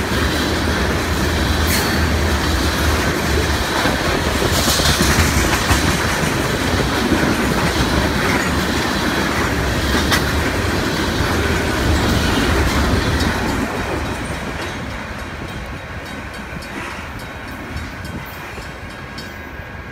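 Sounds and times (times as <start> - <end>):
train wheels rumbling on rails: 0.0 - 19.9.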